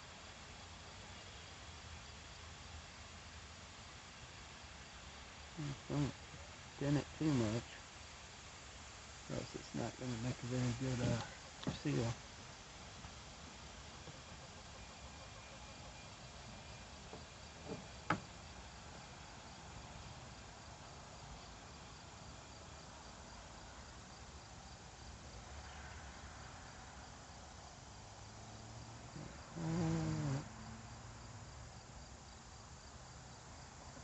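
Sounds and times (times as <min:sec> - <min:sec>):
insects chirping: 0:00.1 - 0:34.0.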